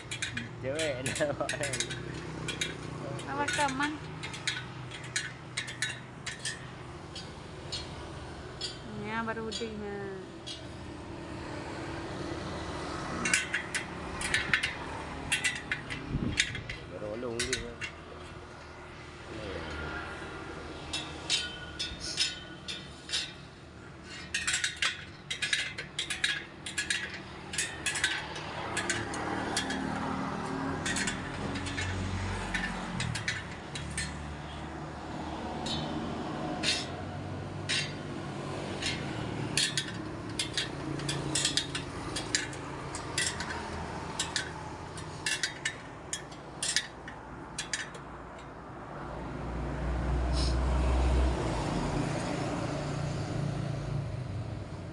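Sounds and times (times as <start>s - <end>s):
metallic clinks of hand tools: 0.0s - 8.9s, 35.4s - 37.0s, 38.6s - 48.5s.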